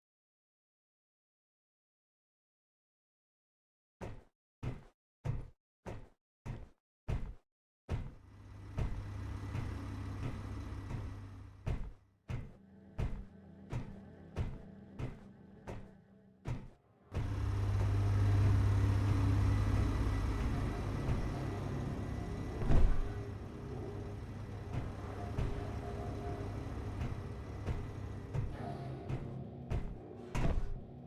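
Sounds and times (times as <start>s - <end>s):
sharp engine knocks: 8.0s - 13.2s, 16.5s - 30.8s
car engine running: 8.2s - 12.0s, 16.6s - 31.0s.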